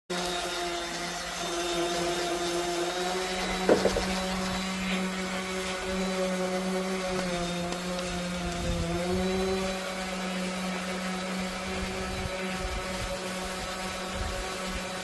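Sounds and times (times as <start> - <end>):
machine motor hum: 0.1 - 15.0
sharp knock: 3.7 - 4.1.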